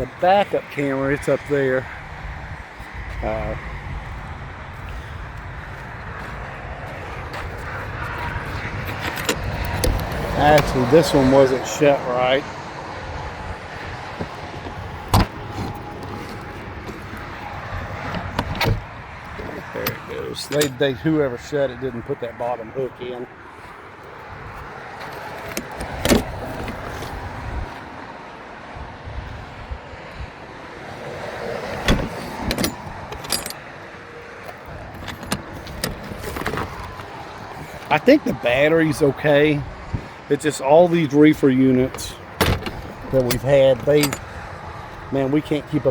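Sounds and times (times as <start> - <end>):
metal latch clunk: 8.7 - 11.2, 14.2 - 20.9, 25.0 - 27.2, 31.7 - 33.7, 34.4 - 38.4, 41.8 - 44.4
latch clicking: 8.8 - 11.0, 14.2 - 18.9, 19.7 - 20.8, 25.0 - 27.2, 31.7 - 33.7, 34.5 - 38.4, 41.9 - 44.4.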